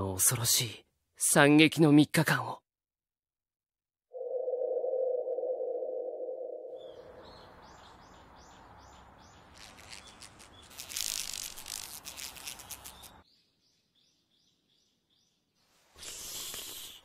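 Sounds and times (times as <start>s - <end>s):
small birds chirping: 6.6s - 17.0s.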